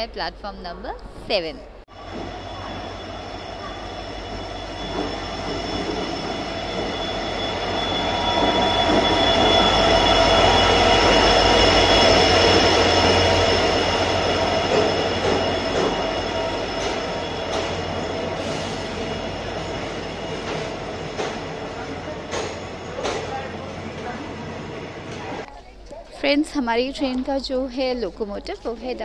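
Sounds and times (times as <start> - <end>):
locomotive engine rumble: 1.9 - 25.5
high-pitched train squeal: 2.0 - 25.4.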